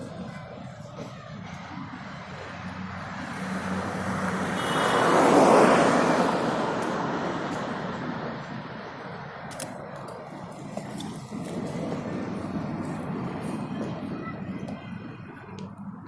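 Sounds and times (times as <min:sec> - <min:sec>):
vehicle passing by: 0:00.0 - 0:09.4.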